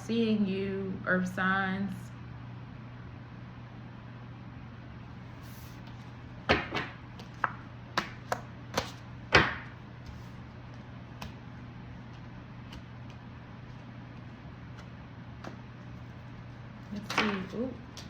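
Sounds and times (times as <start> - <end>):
steady low hum: 0.0 - 18.0
cards slapped on a table: 6.5 - 9.8.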